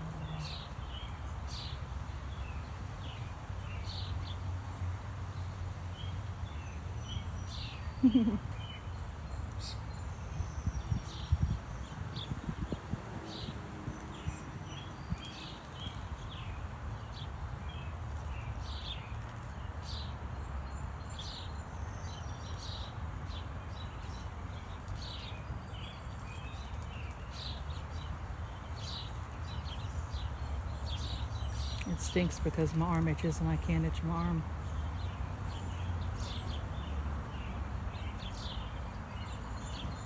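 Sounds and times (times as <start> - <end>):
small birds chirping: 0.0 - 4.5, 5.4 - 40.0.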